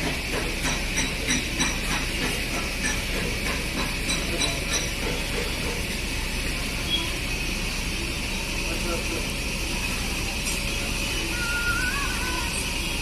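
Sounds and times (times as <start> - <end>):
hammer tapping on sheet metal: 0.0 - 5.9.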